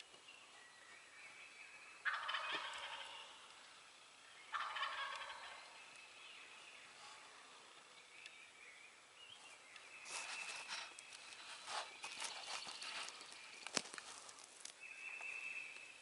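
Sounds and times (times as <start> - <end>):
turkey gobbling: 2.0 - 3.4, 4.5 - 5.8.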